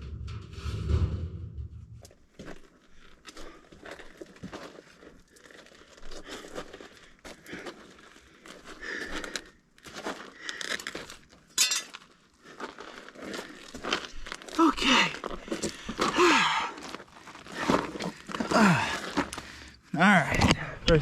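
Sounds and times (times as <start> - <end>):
sharp loud scrape: 0.0 - 2.0
metal debris crinkling and scraping: 0.0 - 2.8, 10.9 - 14.6.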